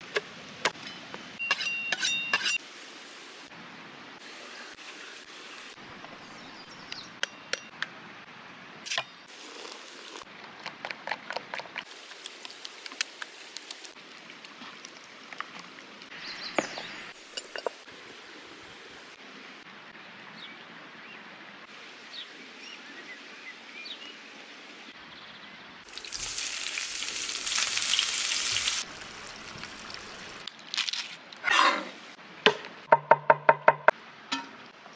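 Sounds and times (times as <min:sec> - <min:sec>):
loud steady hiss: 0:25.9 - 0:30.5.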